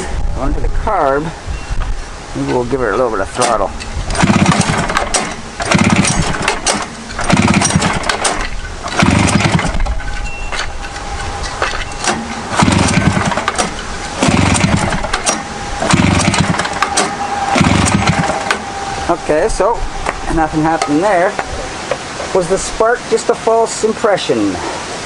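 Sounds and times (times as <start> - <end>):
snowmobile engine being pull-started: 3.4 - 18.6.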